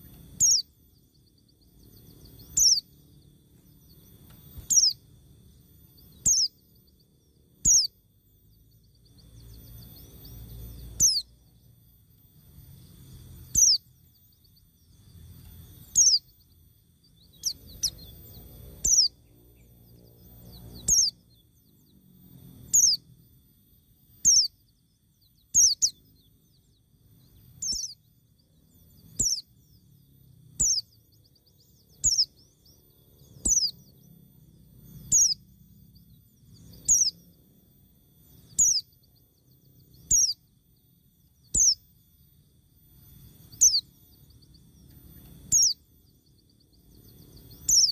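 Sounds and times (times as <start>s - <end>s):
faint low rumble: 0.0s - 47.9s.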